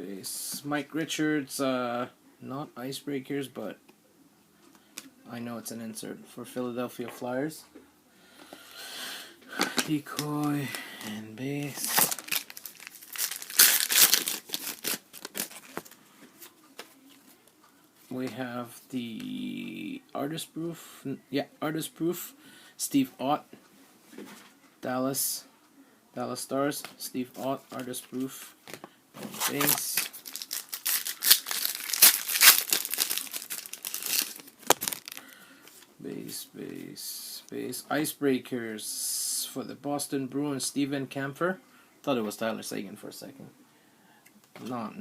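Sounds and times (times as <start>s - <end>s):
foil wrapper crinkling and tearing: 9.6s - 16.0s, 29.4s - 35.3s
cards snapping: 29.4s - 35.2s.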